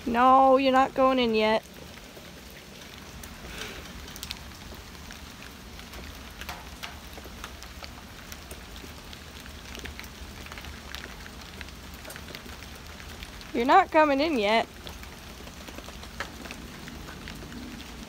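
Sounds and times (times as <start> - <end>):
raindrops ticking on a surface: 0.0 - 18.0
steady rain falling: 0.0 - 18.0.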